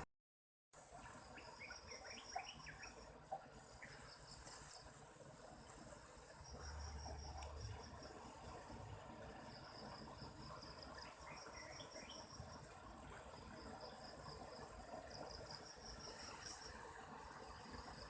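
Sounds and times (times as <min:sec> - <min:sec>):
crickets trilling: 0:00.8 - 0:18.0
pulsing insect chirp: 0:00.8 - 0:18.0.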